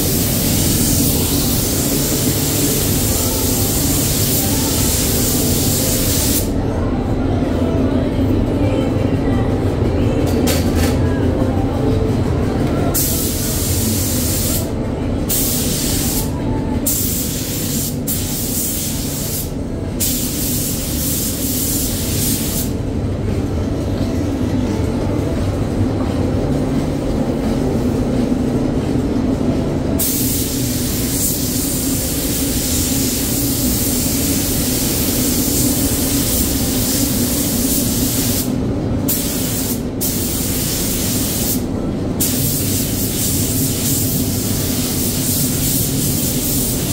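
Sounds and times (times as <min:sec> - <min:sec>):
paint spray gun hissing: 0:00.0 - 0:06.5, 0:42.2 - 0:46.9
steady low drone: 0:22.4 - 0:39.2.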